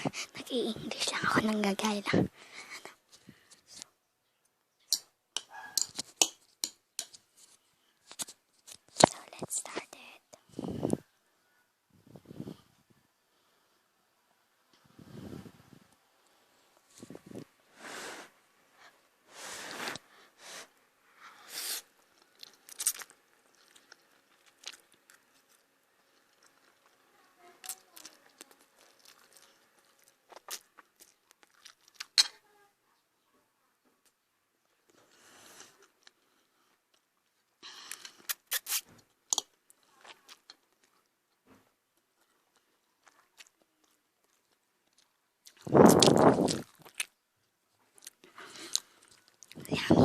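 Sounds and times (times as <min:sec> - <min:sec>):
person eating noodles: 0:21.5 - 0:27.1, 0:27.7 - 0:32.3, 0:37.7 - 0:40.6, 0:44.3 - 0:47.2
chewing with mouth clicks: 0:22.0 - 0:32.2, 0:42.0 - 0:47.2, 0:47.9 - 0:49.7.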